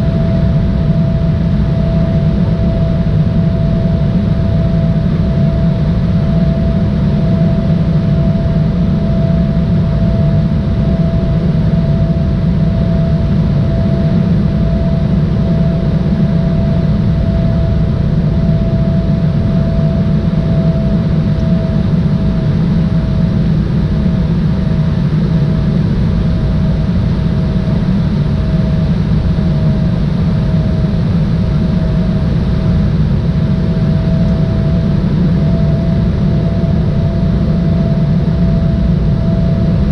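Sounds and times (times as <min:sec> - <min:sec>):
airliner engines rumbling: 0:00.0 - 0:39.9
steady engine whine: 0:00.0 - 0:39.9.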